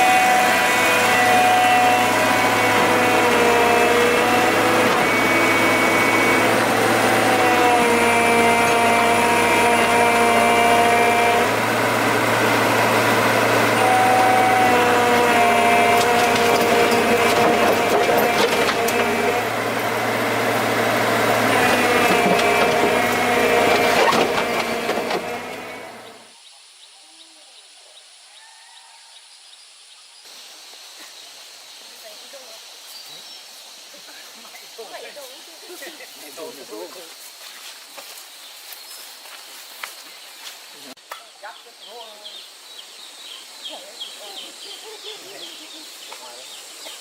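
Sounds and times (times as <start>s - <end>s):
chainsaw cutting wood: 0.0s - 26.3s.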